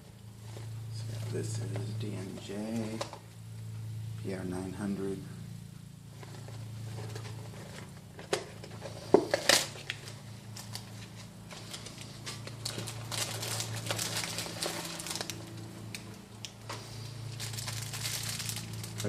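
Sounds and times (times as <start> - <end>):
packaging clicks and rustles: 6.2 - 19.0
wrapping crinkling: 6.2 - 19.0.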